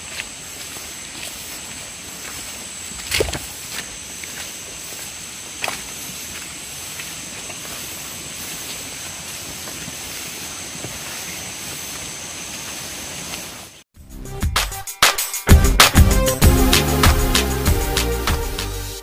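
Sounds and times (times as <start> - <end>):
hiss: 0.0 - 13.8
insects trilling: 0.0 - 13.8.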